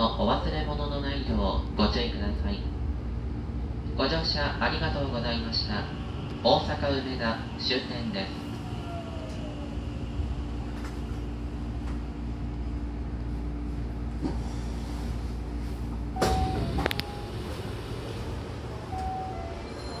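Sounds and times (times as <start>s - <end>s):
train rolling to a stop: 8.2s - 13.0s, 13.7s - 20.0s
sliding doors clunking open: 16.2s - 19.5s.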